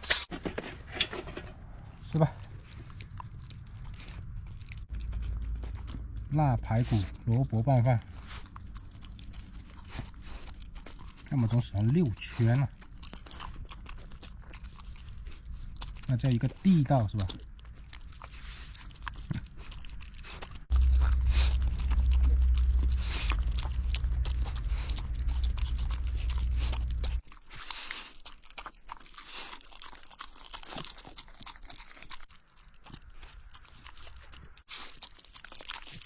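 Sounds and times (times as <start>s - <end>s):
animal chewing and crunching food: 0.0s - 36.0s
loud low rumble: 20.7s - 27.2s.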